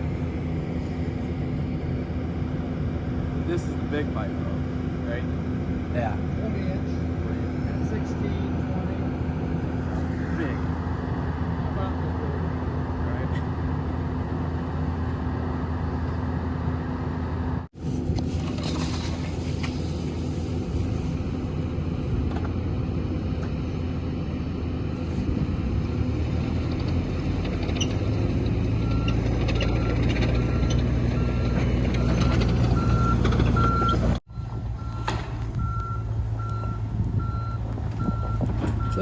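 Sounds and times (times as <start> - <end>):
heavy diesel machinery running: 0.0 - 39.0
backup alarm beeping: 32.3 - 39.0.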